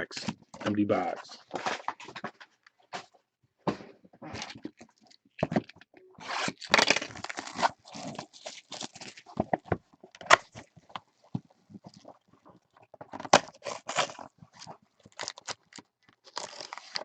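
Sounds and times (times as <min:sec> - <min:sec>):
cardboard boxes tearing: 0:06.2 - 0:09.6, 0:13.2 - 0:17.0.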